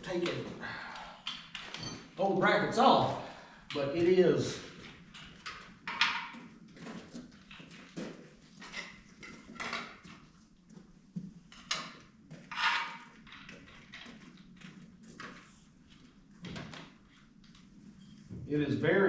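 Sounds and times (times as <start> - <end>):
metal tools clinking and scraping: 1.0 - 2.2, 11.6 - 14.2.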